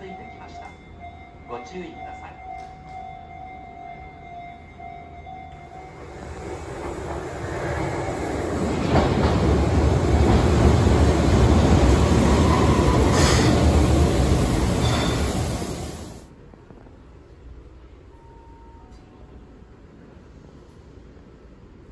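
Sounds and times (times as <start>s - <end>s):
train wheels rumbling: 5.6s - 16.3s.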